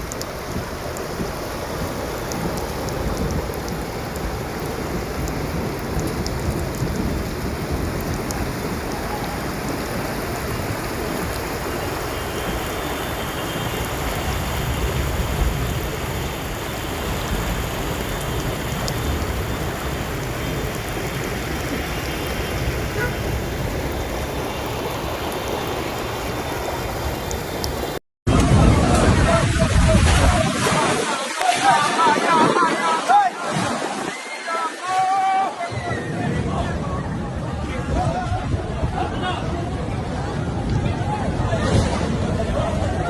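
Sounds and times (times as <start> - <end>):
sharp raindrop ticks: 0.0 - 9.2, 9.8 - 23.2, 23.8 - 28.0
heavy rain falling: 0.0 - 43.0.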